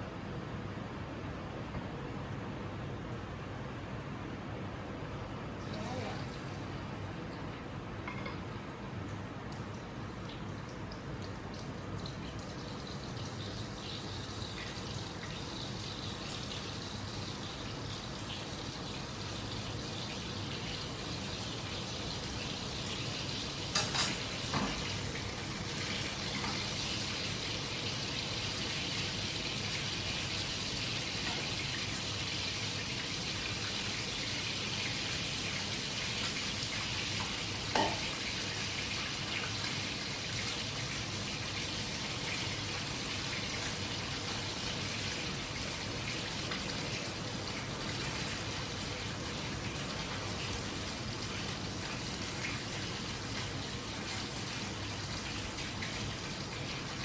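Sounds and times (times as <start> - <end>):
food sizzling in hot oil: 13.4 - 49.2.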